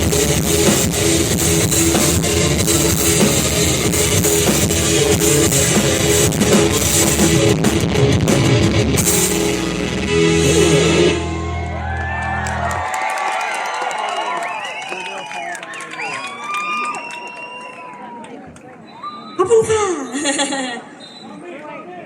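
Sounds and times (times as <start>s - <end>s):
drum kit: 0.0s - 11.8s
live rock band playing: 0.0s - 12.7s
electric guitar: 0.0s - 12.8s.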